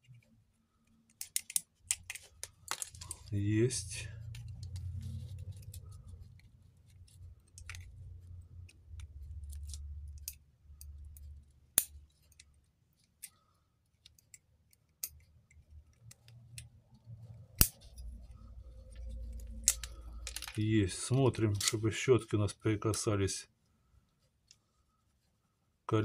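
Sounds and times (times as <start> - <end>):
small metallic clicks and ticks: 0.0 - 3.3, 4.3 - 20.6.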